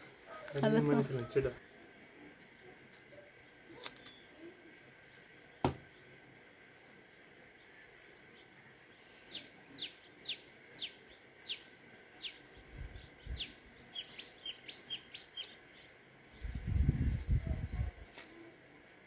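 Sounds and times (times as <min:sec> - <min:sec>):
bird whistling: 0:13.3 - 0:15.6.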